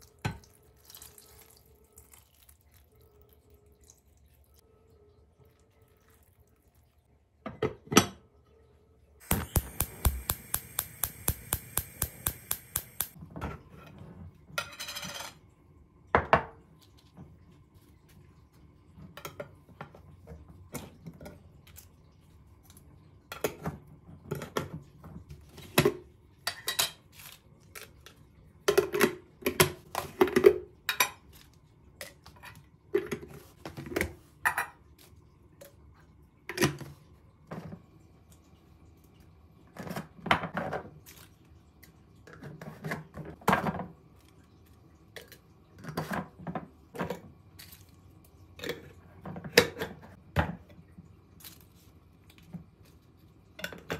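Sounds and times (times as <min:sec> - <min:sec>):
dishes and pots clinking: 0:07.4 - 0:08.3, 0:14.5 - 0:15.4, 0:25.7 - 0:27.1, 0:28.7 - 0:31.3.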